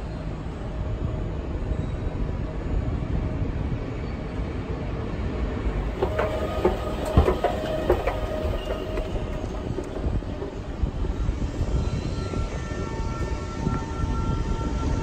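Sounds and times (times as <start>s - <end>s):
low rumble of trains: 0.0s - 15.0s
sharp clicks and knocks: 6.0s - 10.8s.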